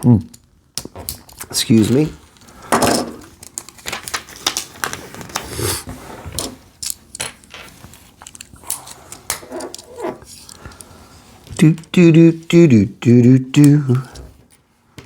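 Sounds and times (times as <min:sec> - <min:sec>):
falling voice-like sounds: 0:11.6 - 0:14.3.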